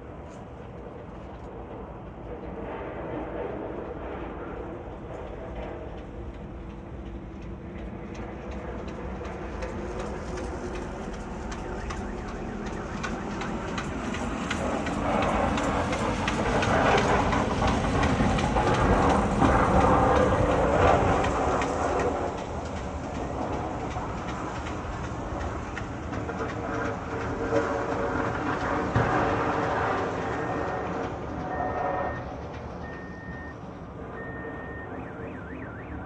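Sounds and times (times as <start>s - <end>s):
train wheels clattering on rails: 0.0s - 36.0s.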